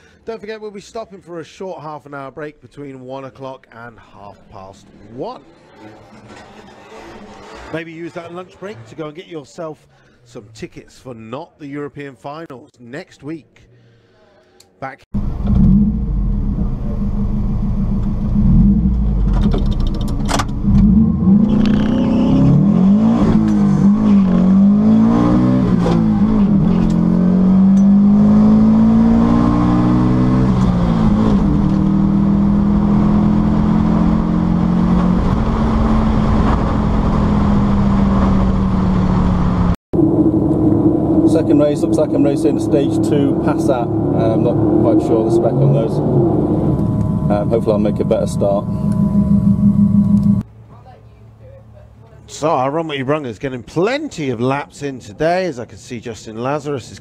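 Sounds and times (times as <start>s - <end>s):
car engine revving through gears: 15.2s - 50.4s.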